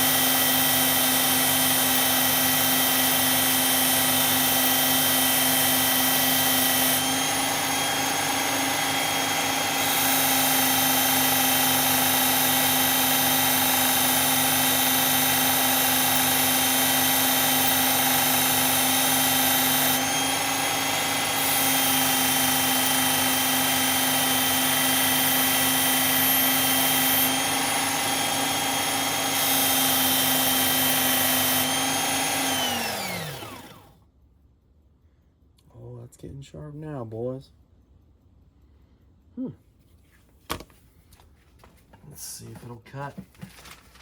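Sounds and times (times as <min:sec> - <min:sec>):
electric belt sharpener running: 0:00.0 - 0:34.0
motor winding down: 0:00.0 - 0:34.0.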